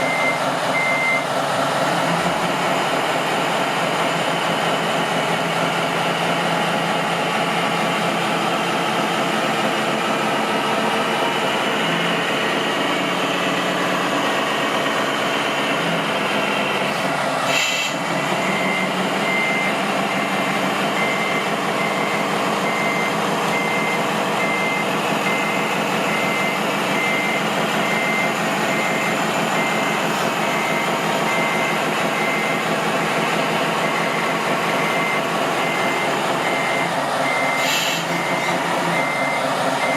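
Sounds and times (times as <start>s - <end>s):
reversing alarm beeping: 0.0s - 1.3s, 17.6s - 39.9s
truck engine running: 0.0s - 39.9s.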